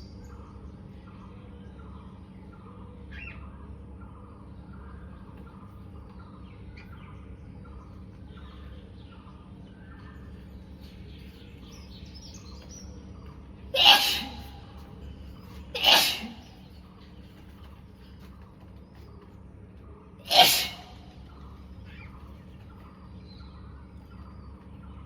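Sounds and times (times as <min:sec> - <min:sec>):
birds chirping: 0:00.0 - 0:25.0
steady low background noise: 0:00.0 - 0:25.0.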